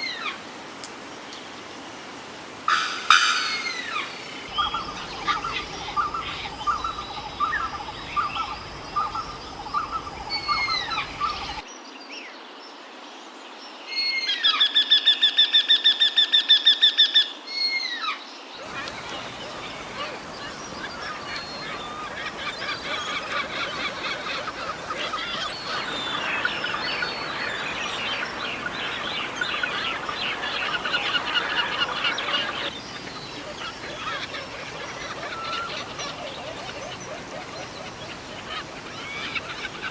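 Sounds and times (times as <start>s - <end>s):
wild birds calling: 2.7s - 11.6s, 18.6s - 39.9s
chorus of many birds: 2.7s - 11.8s, 18.5s - 39.9s
fast run of bird notes: 4.4s - 11.6s, 18.6s - 39.9s.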